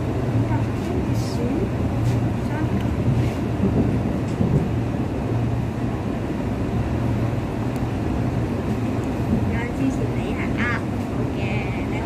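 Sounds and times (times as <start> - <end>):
train running at speed: 0.0 - 12.0.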